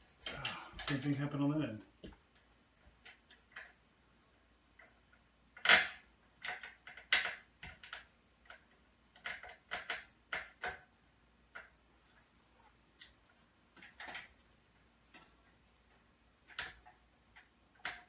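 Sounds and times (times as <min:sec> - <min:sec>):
metal hardware clicks and knocks: 0:00.2 - 0:01.3.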